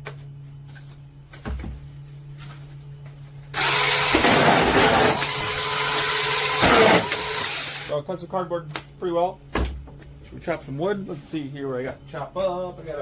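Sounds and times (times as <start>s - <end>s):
mini chainsaw cutting cardboard: 3.6s - 8.0s.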